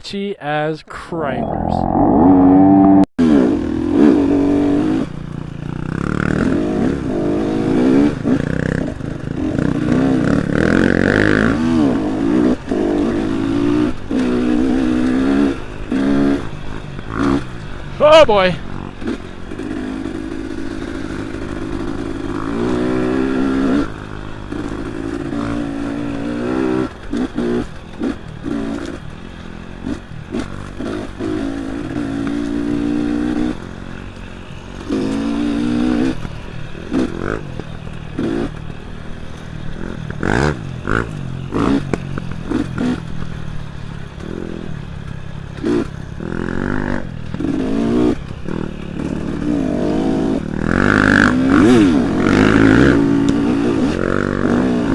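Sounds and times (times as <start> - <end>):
dirt bike engine revving: 1.4 - 17.4, 18.0 - 28.9, 34.8 - 37.5, 45.6 - 54.9.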